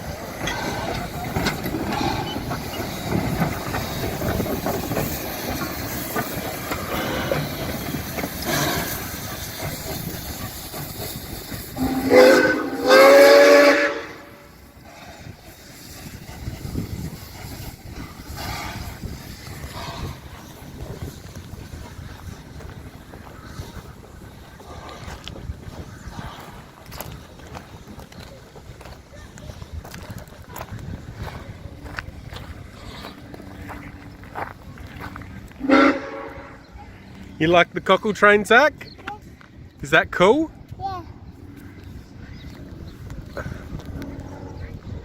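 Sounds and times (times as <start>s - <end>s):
steam locomotive hissing: 0.0s - 45.0s
steam whistle blasts: 11.7s - 14.5s, 35.6s - 36.6s.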